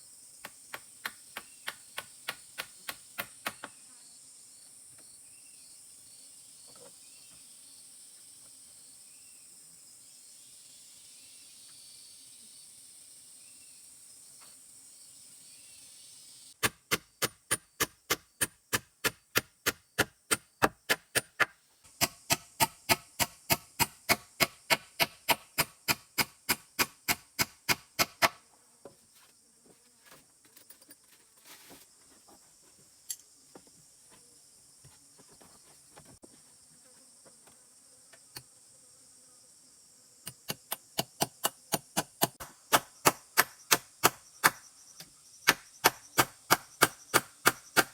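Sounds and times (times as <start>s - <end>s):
high insect drone: 0.0s - 16.6s, 32.1s - 47.9s
rapid chopping strikes: 0.4s - 3.8s, 16.6s - 28.4s, 40.3s - 44.6s, 45.5s - 47.9s.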